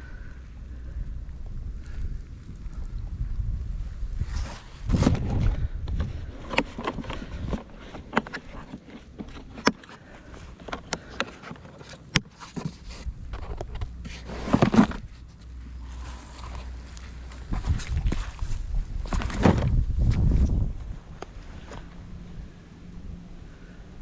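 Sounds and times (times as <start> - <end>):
rustling and crunching: 4.0 - 22.0.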